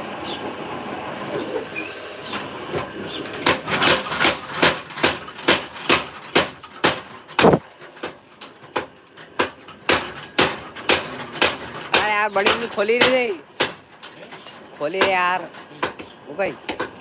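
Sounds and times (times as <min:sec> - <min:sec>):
hammer striking metal: 0:05.0 - 0:07.6.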